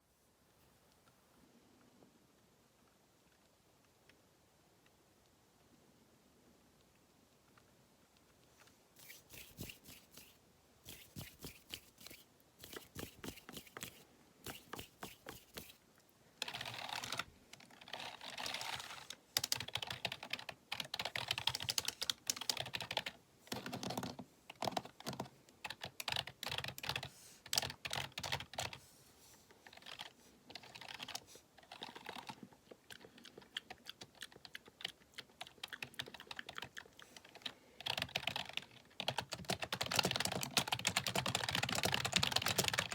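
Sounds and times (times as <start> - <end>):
computer keyboard typing: 9.0 - 15.8, 19.4 - 28.8, 29.7 - 42.9.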